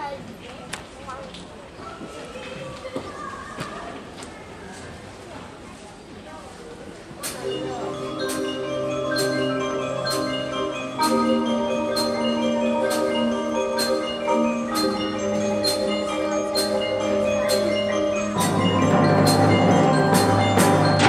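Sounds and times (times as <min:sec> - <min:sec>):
mallet percussion: 0:07.2 - 0:21.0
sustained ensemble chords: 0:07.2 - 0:21.0
sharp beat ticks: 0:08.2 - 0:17.8.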